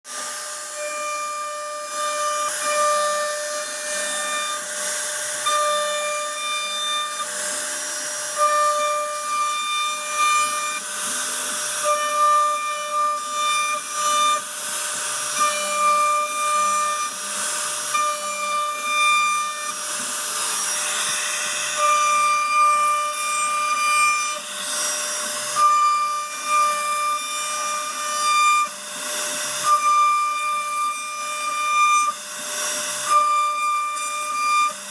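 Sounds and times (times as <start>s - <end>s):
router spindle whining: 0.1s - 34.9s.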